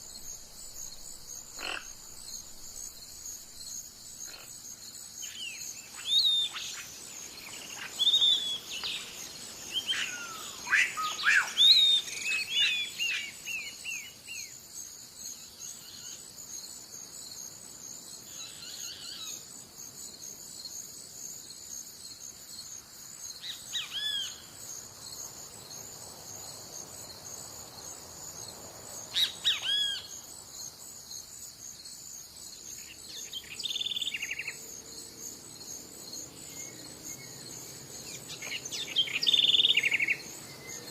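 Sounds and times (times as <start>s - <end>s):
high insect drone: 0.0s - 40.9s
wild birds singing and calling: 0.2s - 2.9s, 5.2s - 14.6s, 23.4s - 24.5s, 29.1s - 30.2s, 32.7s - 34.6s, 36.0s - 40.9s.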